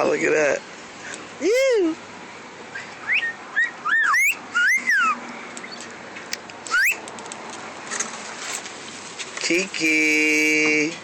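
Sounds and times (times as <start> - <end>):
parrot whistling: 2.7 - 5.8, 6.7 - 7.0.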